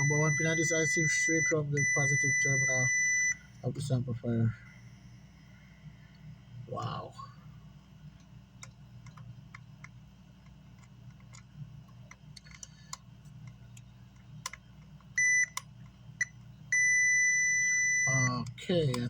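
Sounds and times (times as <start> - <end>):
multimeter continuity beeps: 0.0 - 3.5, 15.2 - 19.0.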